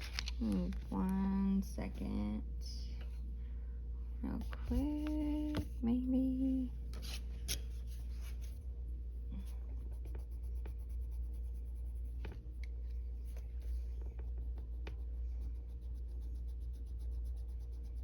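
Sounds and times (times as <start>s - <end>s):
steady low hum: 0.0s - 18.0s
pencil scratching on paper: 9.4s - 18.0s.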